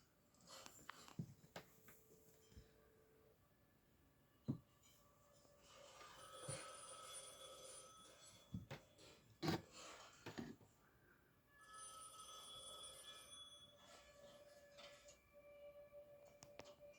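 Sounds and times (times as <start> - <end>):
telephone ringing: 5.9 - 8.5, 11.6 - 14.1.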